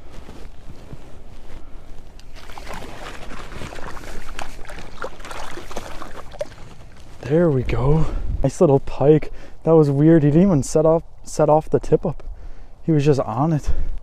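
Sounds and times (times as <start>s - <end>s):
water splashing and sloshing: 2.2s - 7.2s.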